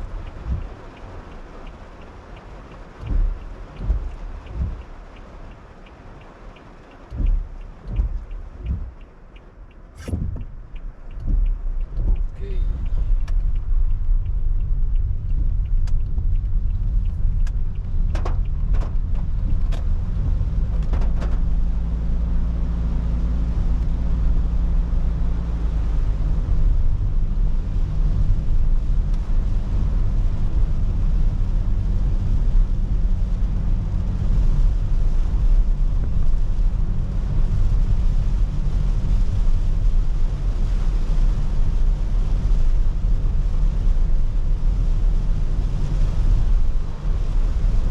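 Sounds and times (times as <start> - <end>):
engine and tyres rumbling: 0.0 - 47.9
rain hissing on wet road: 0.0 - 47.9
sharp taps: 2.7 - 19.9.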